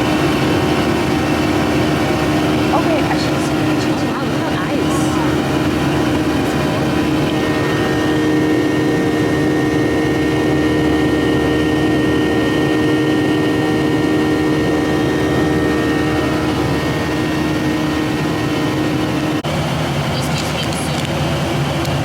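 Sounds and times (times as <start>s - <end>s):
airliner cabin engine hum: 0.0s - 22.0s
broad rushing noise: 1.5s - 8.9s.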